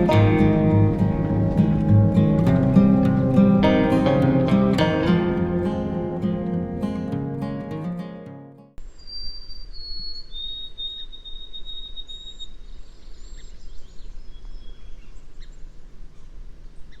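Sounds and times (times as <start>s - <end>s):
acoustic guitar music: 0.0s - 8.8s
faint bird chirps: 8.8s - 17.0s
bird whistled song: 8.9s - 15.6s.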